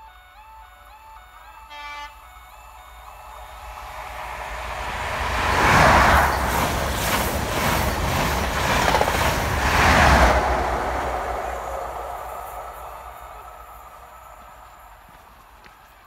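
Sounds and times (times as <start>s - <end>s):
diesel train passing at speed: 0.0s - 16.0s
wheels clattering over rails: 4.8s - 13.1s.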